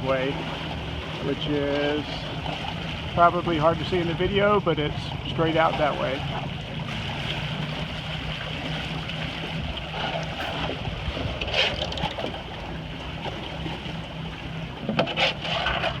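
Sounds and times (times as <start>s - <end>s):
water rushing past hull: 0.0s - 16.0s
wind on microphone: 9.4s - 16.0s.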